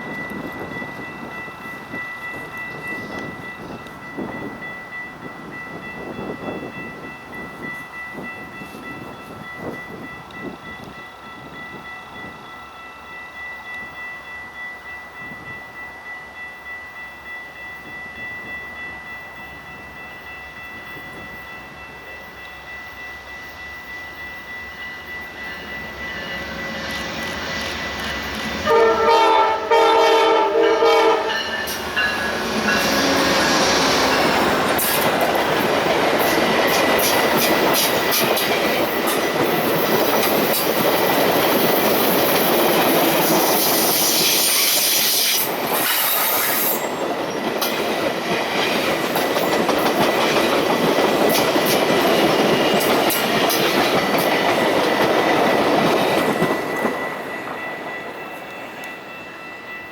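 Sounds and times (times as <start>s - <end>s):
train wheels rushing on rail: 0.0s - 16.2s, 16.9s - 59.9s
train horn: 28.0s - 34.8s.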